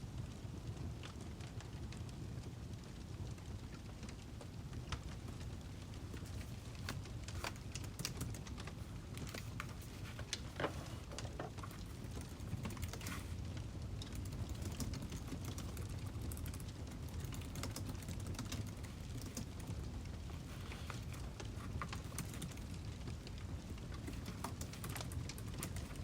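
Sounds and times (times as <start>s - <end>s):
low fire rumble: 0.0s - 26.0s
wood fire crackling and popping: 0.0s - 26.0s.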